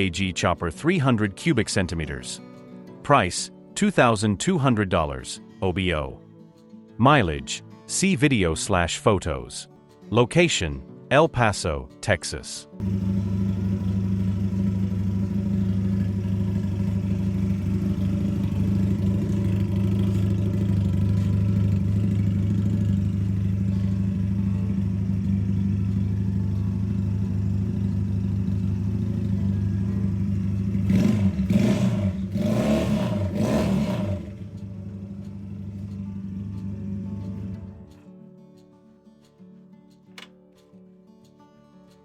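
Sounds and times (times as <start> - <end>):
motorcycle engine idling and revving: 12.8 - 38.1.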